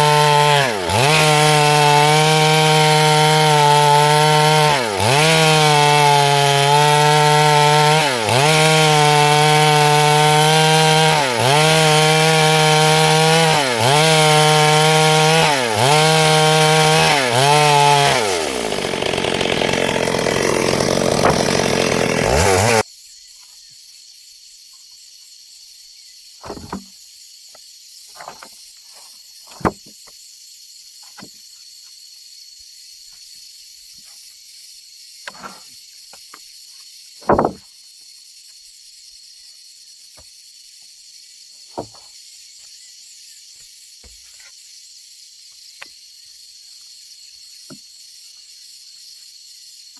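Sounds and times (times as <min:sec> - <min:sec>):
chainsaw cutting wood: 0:00.0 - 0:22.8, 0:37.3 - 0:37.6
rough sawing noise: 0:00.0 - 0:22.8.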